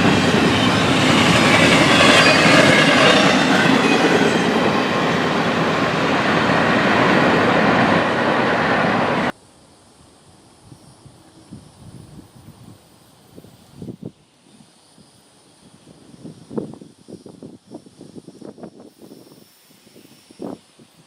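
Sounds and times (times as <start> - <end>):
high squealing: 0.0 - 7.9
faint outdoor air: 0.0 - 21.0.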